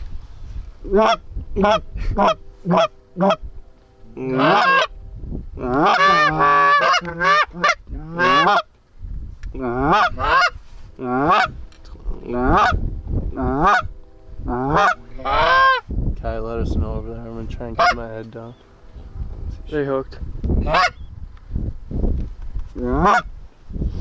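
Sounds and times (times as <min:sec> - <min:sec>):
goose honking: 0:00.8 - 0:08.7, 0:09.6 - 0:15.9, 0:17.6 - 0:19.0, 0:20.6 - 0:21.0, 0:22.8 - 0:23.4.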